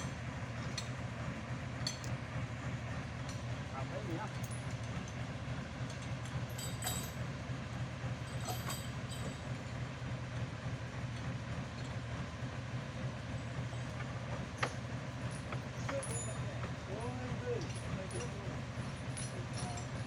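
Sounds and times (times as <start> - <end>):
truck engine droning: 0.0 - 20.0
faint metallic clinks: 5.9 - 7.2, 8.3 - 9.5, 14.6 - 16.7, 17.6 - 20.0.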